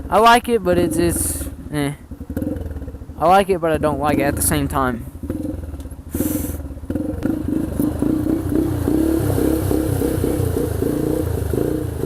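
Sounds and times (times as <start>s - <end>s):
dirt bike engine revving: 0.7s - 3.1s, 3.7s - 12.0s.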